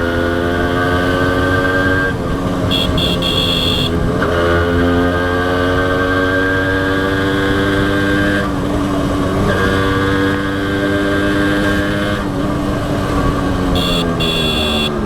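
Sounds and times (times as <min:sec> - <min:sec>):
motorcycle two-stroke engine running: 0:02.2 - 0:05.2, 0:11.3 - 0:15.0.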